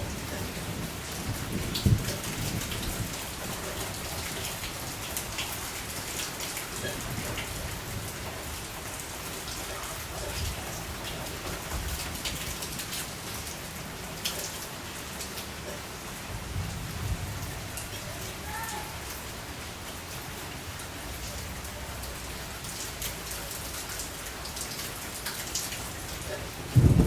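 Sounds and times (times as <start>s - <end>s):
steady rain falling: 0.0s - 27.0s
low rumbles: 26.6s - 27.0s.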